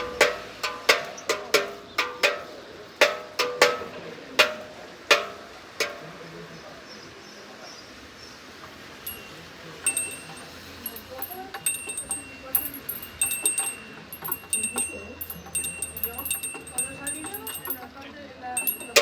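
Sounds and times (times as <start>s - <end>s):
small high-pitched bells struck: 9.1s - 18.0s, 18.6s - 19.0s.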